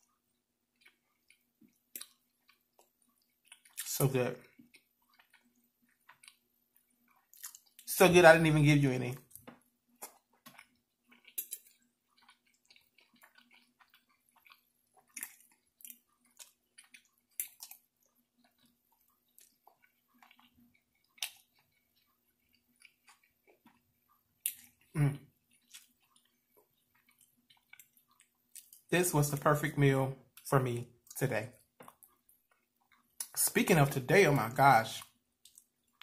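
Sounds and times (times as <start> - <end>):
chewing with mouth clicks: 0.0 - 7.9, 9.2 - 28.9, 30.3 - 33.4, 34.4 - 36.0
person humming: 25.0 - 25.2.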